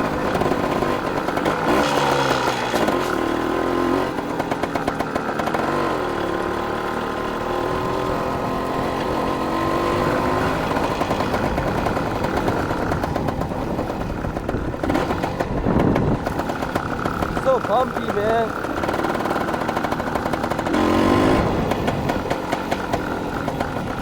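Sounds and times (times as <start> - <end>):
dirt bike engine revving: 0.0 - 24.0
bike jolt: 1.4 - 3.5.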